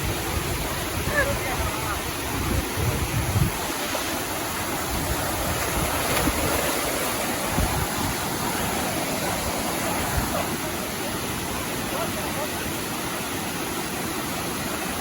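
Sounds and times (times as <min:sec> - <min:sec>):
waterfall rushing: 0:00.0 - 0:15.0
wind thumps on microphone: 0:02.2 - 0:03.8, 0:04.8 - 0:08.2.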